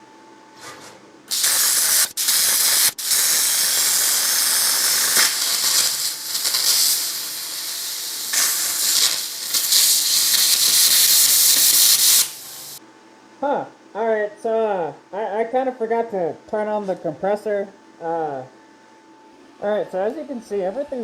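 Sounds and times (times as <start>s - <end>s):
plasma torch hissing: 1.3s - 12.8s.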